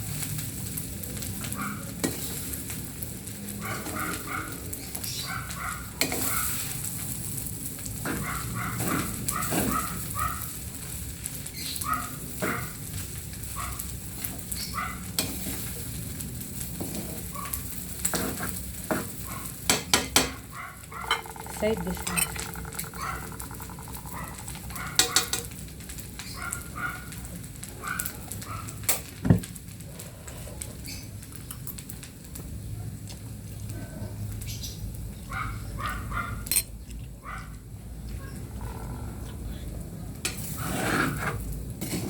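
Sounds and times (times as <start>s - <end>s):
food sizzling in a pan: 0.0s - 5.2s, 5.8s - 27.5s
utensil scraping a pan: 18.0s - 19.2s, 21.0s - 25.5s, 40.4s - 42.0s.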